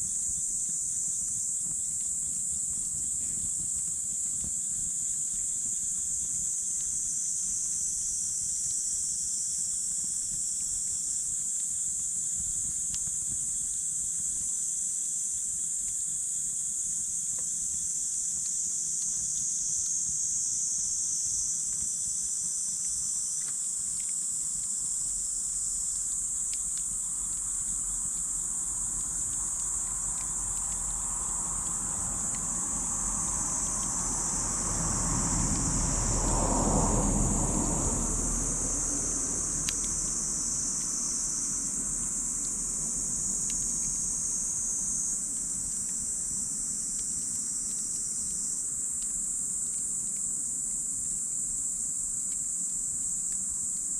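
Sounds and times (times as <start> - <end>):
insects chirring: 0.0 - 53.9
campfire crackling: 21.8 - 35.7.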